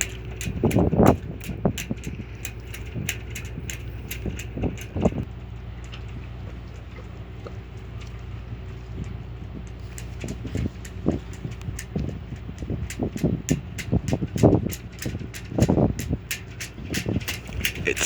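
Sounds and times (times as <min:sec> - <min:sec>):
ferry diesel engines droning: 0:00.0 - 0:18.0
light ticks: 0:09.0 - 0:18.0.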